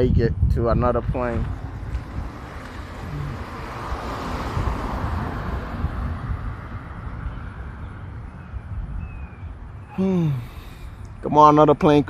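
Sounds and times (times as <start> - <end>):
wind rumbling on microphone: 0.0 - 12.0
passing vehicle rushing: 1.0 - 9.9.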